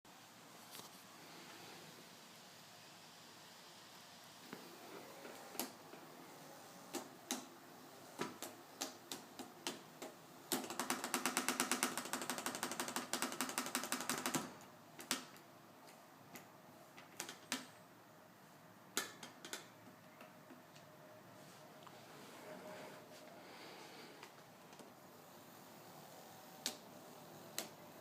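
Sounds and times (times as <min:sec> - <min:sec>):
rapid ticking clatter: 0:10.5 - 0:14.6.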